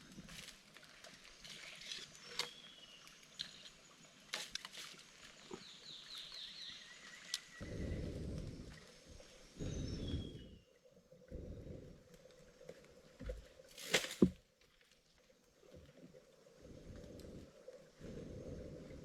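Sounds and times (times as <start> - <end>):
birds chirping: 5.5 - 10.8.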